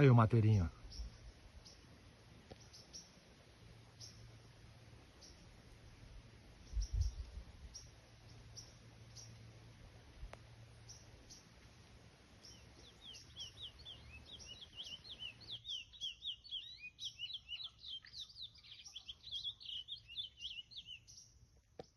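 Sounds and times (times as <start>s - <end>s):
finch singing rapid chirps: 12.4s - 21.3s.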